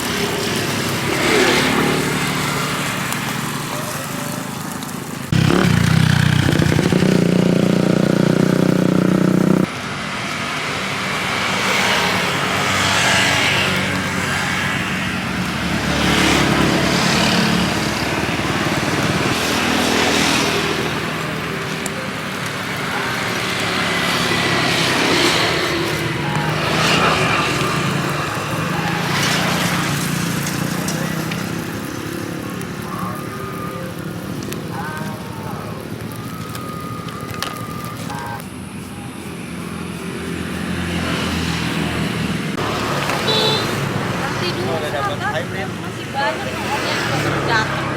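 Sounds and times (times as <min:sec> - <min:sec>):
vehicle engine running: 0:00.0 - 0:09.8
street noise: 0:00.0 - 0:47.9
vehicle engines passing: 0:00.0 - 0:47.9.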